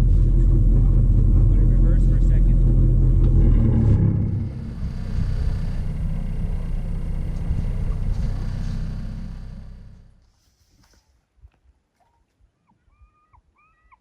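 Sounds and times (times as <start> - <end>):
boat engine humming: 0.0 - 10.2.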